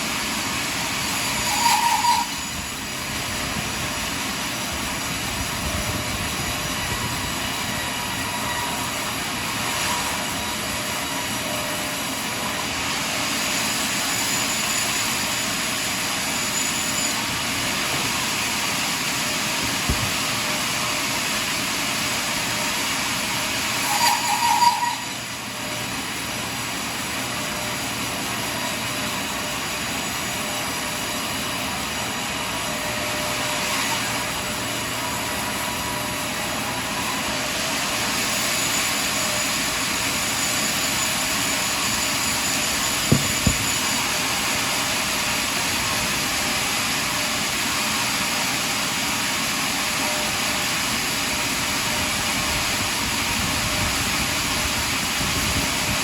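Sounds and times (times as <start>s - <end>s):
sawmill cutting log: 0.0s - 54.6s
faint saw whine: 0.0s - 56.0s
sharp knocks: 43.1s - 43.8s.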